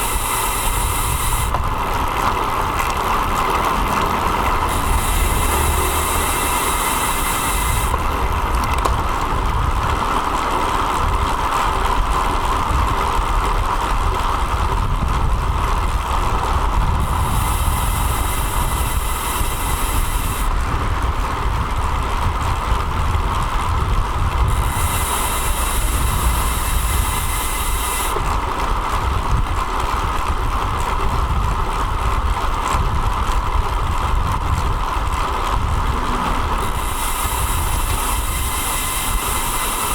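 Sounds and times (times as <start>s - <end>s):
high hiss: 0.0s - 1.6s, 4.6s - 8.0s, 17.0s - 20.6s, 24.5s - 28.2s, 36.0s - 39.9s
constant hum: 0.0s - 39.9s
wind noise: 0.0s - 39.9s.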